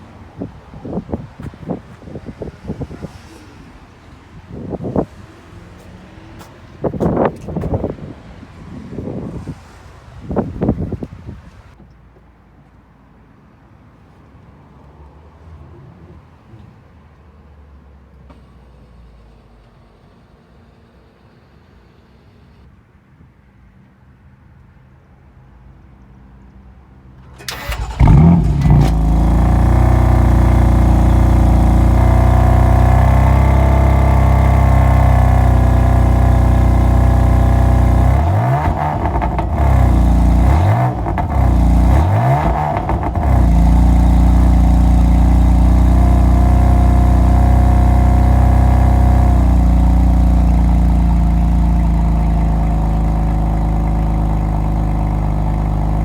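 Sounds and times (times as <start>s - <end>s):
car engine cranking: 27.2s - 56.0s
car engine idling: 27.2s - 56.0s
car engine revving: 27.4s - 56.0s.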